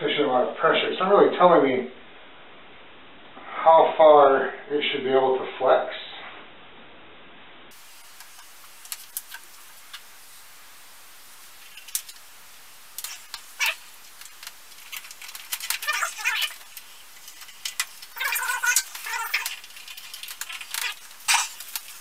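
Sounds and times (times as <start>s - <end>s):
paper rustling: 12.9s - 22.0s
small metallic clicks and squeaks: 13.0s - 22.0s.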